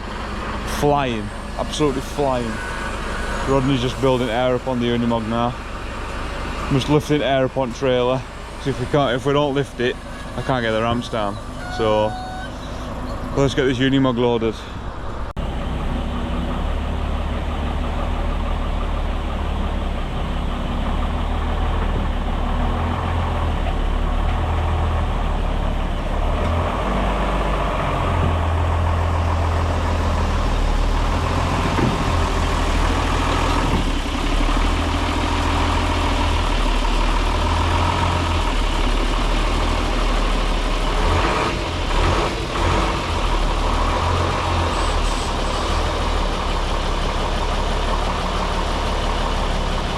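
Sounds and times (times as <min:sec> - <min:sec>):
diesel engines running: 0:00.0 - 0:49.9
knocks: 0:31.6 - 0:32.2.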